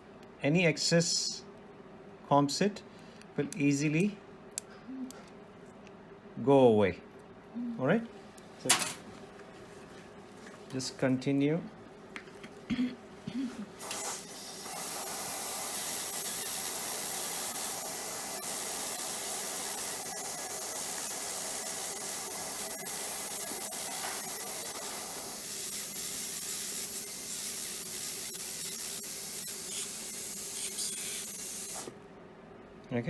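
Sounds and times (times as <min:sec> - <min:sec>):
dental handpiece hissing: 0:13.8 - 0:32.0.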